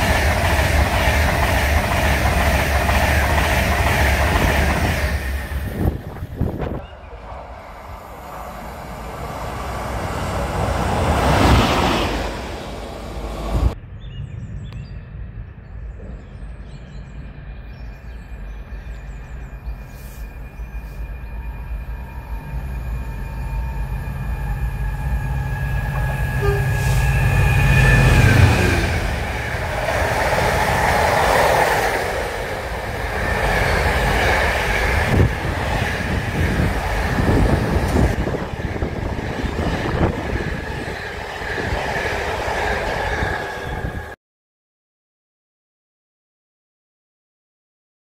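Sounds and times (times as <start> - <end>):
diesel locomotive passing: 0.0 - 13.9, 15.0 - 44.2
steady high whine: 14.9 - 41.8.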